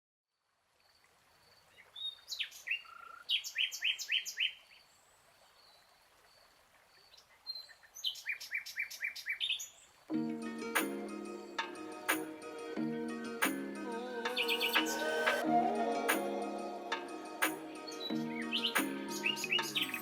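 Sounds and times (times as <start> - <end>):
songbird singing: 1.6 - 10.0, 13.8 - 20.0.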